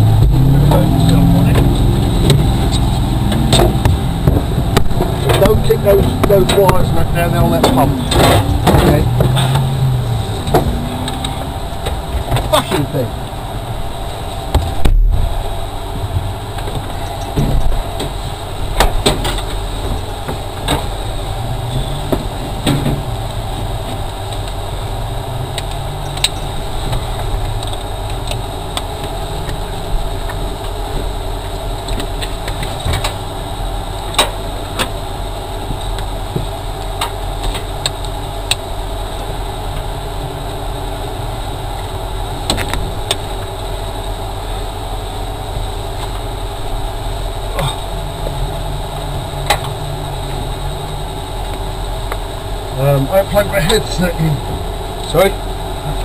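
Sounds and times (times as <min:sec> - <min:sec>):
car engine idling: 0:00.0 - 0:56.0
sharp clicks and knocks: 0:00.2 - 0:09.8.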